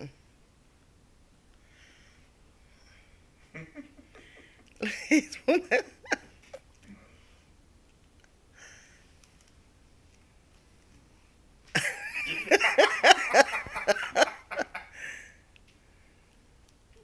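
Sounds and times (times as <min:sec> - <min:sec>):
person laughing hard: 0:03.6 - 0:06.3, 0:11.8 - 0:15.1.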